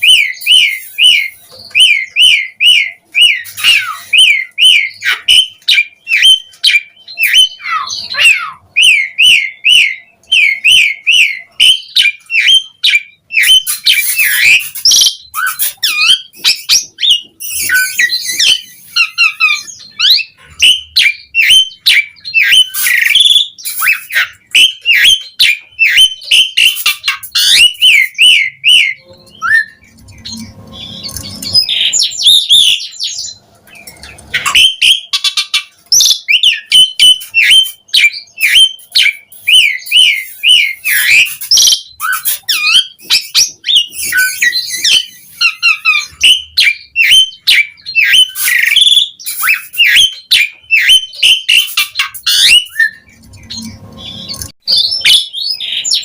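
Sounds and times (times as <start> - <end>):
starling singing: 0.0 - 56.0.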